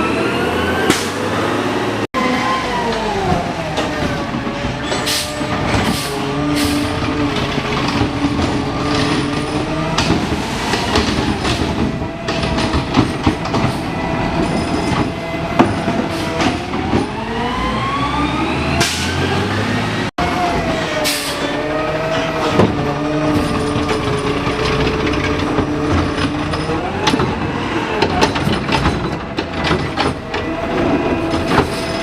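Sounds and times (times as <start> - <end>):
garbage truck engine revving: 0.0 - 32.0
clanks and bangs: 3.0 - 17.2, 22.1 - 32.0.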